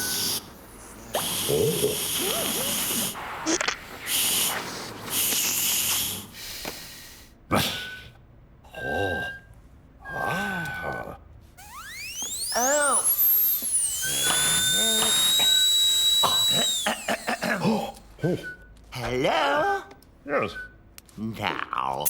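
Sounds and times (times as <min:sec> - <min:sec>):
cartoon hissing bursts: 0:01.0 - 0:06.6, 0:11.6 - 0:17.9.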